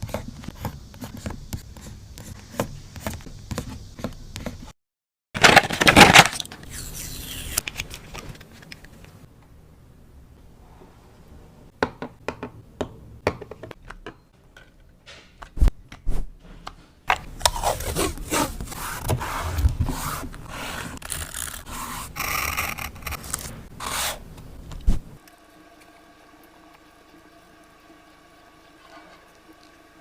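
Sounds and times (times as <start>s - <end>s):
rubbing and scraping on paper: 17.5s - 24.2s.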